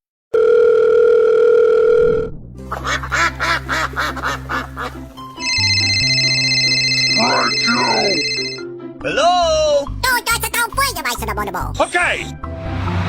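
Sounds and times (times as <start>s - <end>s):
quack-like calls: 2.7s - 5.7s
high electronic tones: 5.4s - 8.6s.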